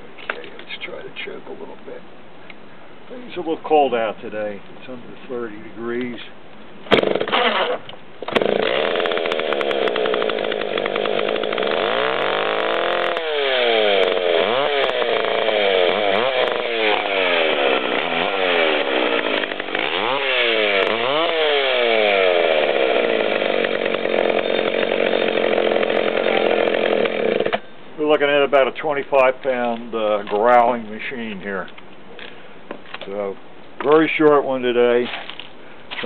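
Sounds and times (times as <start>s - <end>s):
chainsaw revving: 6.9s - 27.6s.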